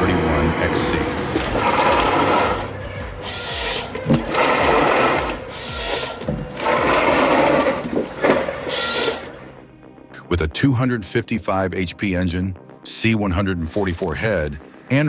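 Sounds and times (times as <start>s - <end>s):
forest harvester machinery buzzing: 0.0s - 9.5s.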